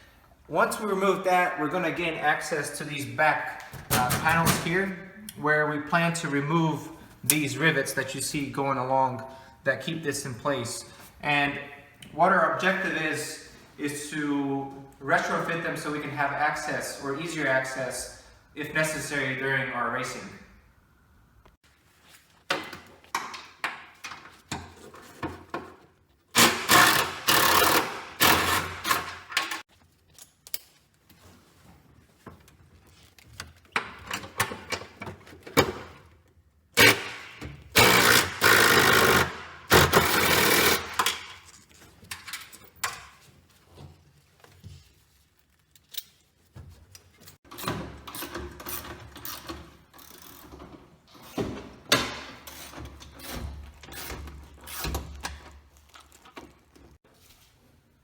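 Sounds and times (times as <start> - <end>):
power tool rattling: 26.4 - 29.6, 36.8 - 37.2, 37.8 - 41.3.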